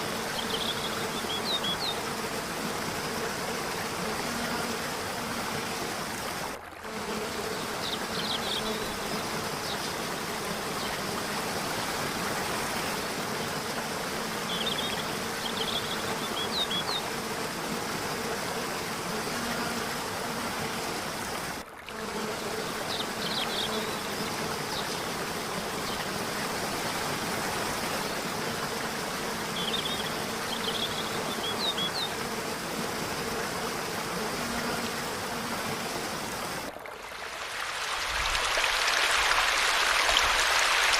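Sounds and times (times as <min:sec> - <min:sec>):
falling water: 0:36.4 - 0:40.9.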